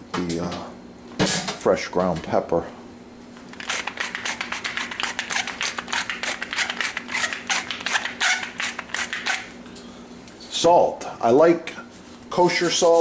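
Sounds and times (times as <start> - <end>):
pepper mill grinding: 3.5 - 9.6.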